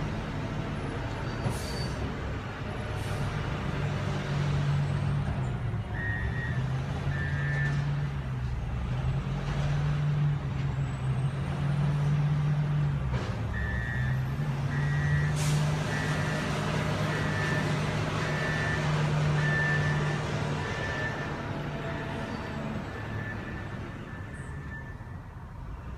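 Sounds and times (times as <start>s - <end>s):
diesel engine running: 0.0s - 25.9s
reversing alarm beeping: 5.9s - 8.2s, 13.5s - 21.4s, 22.4s - 25.2s.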